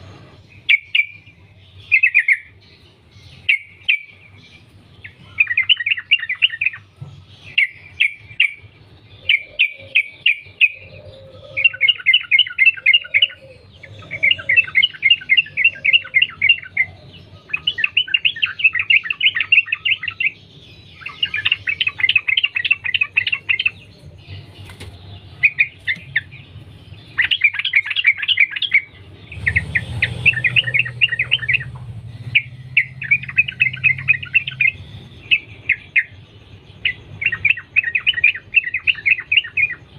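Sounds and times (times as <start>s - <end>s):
low rumble: 28.9s - 35.8s.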